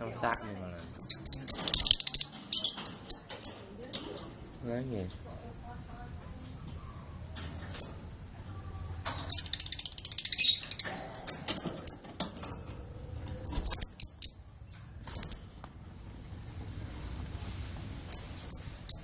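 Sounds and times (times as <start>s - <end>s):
canaries chirping: 0.0s - 4.0s, 6.6s - 15.6s, 18.1s - 19.0s.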